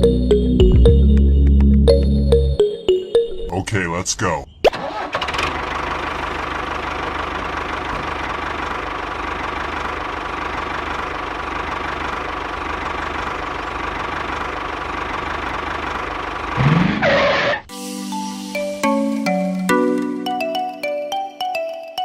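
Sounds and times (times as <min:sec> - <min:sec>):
tractor engine idling: 0:04.8 - 0:16.6.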